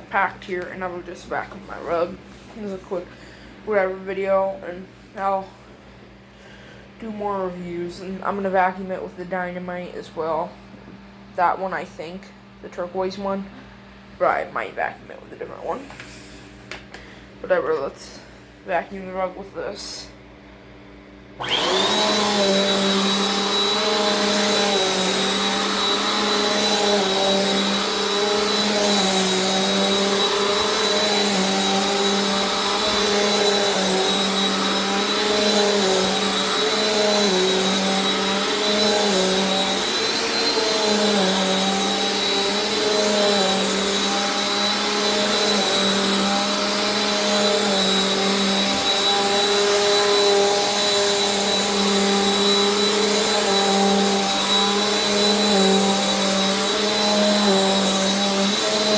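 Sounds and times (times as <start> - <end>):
vacuum cleaner running: 0.0 - 58.9.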